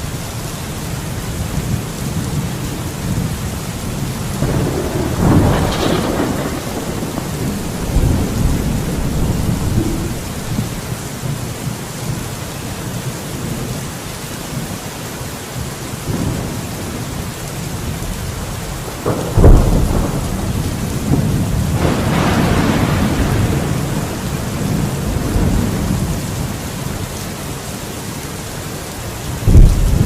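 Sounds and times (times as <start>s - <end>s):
steady rain on a surface: 0.0s - 30.0s
rolling thunder: 1.4s - 11.4s, 16.1s - 27.0s, 29.3s - 30.0s
sharp thunderclap: 4.4s - 11.0s, 18.8s - 26.2s, 29.4s - 30.0s.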